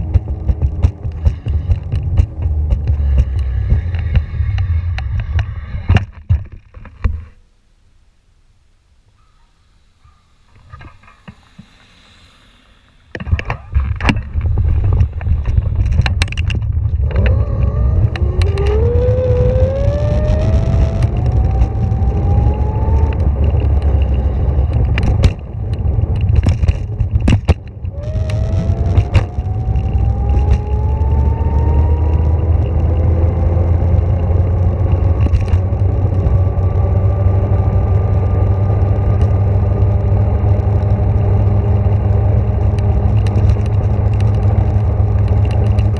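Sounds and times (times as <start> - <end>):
low rumble: 0.0 - 7.2, 10.4 - 45.9
electric motor whining: 17.0 - 25.0, 27.9 - 33.4
knocks and rattles: 23.0 - 30.7.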